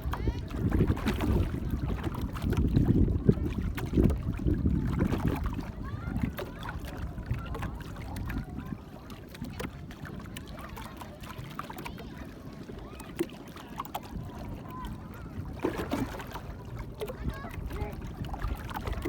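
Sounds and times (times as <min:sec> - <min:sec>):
boat engine rumble: 0:00.0 - 0:19.0
faint voices: 0:00.0 - 0:19.0
water noise: 0:00.0 - 0:19.0.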